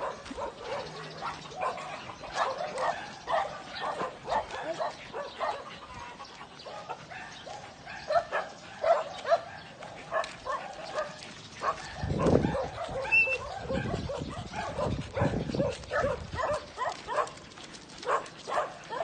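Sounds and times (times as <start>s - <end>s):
small dogs whining and yipping: 11.6s - 17.2s.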